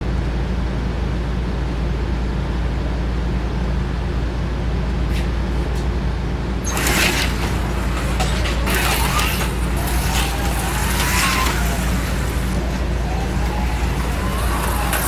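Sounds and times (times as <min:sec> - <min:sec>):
whirring rattle: 0:04.9 - 0:15.0
small electric motors humming: 0:06.6 - 0:15.0.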